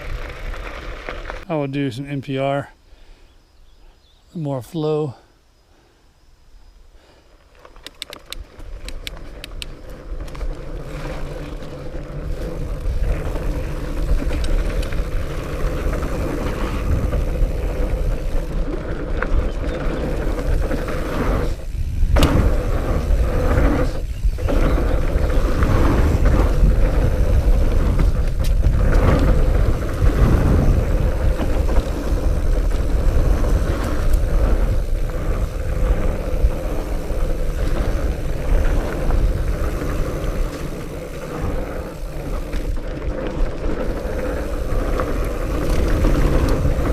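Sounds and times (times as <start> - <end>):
bike tyres rumbling on dirt: 0.0 - 1.7, 7.3 - 46.9
wind on camera: 7.8 - 46.9.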